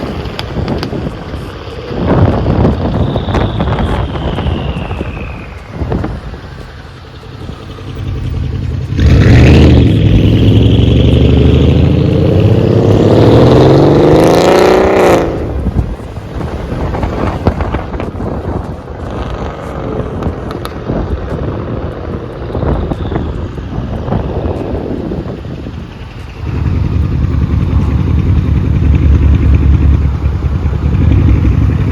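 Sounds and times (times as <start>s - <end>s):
exhaust cracks: 0.0s - 22.7s
car engine accelerating hard: 5.8s - 18.1s, 26.4s - 31.9s.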